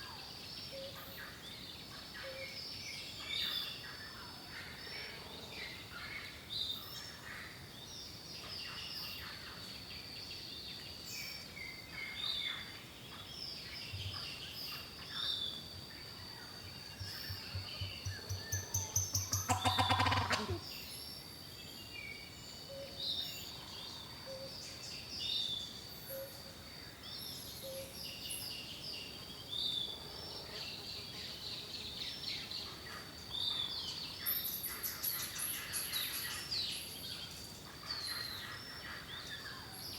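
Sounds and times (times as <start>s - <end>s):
birds chirping and singing: 7.8s - 26.2s, 31.5s - 39.9s.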